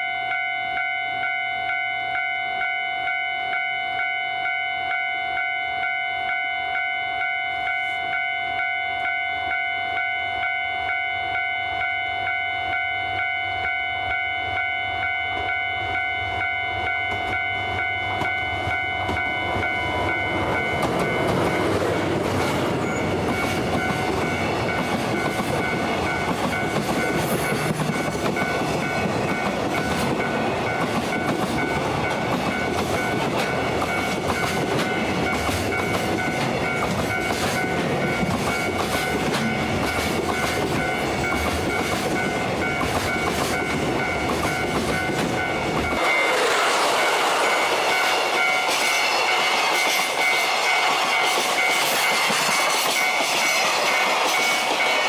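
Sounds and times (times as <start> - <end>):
level crossing bell ringing: 0.0 - 21.7
diesel locomotive engine: 0.0 - 55.0
train wheels on rails: 0.0 - 55.0.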